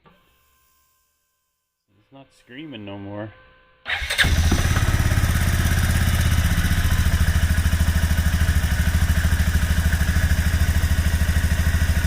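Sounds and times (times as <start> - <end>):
small engine idling: 3.9 - 12.0.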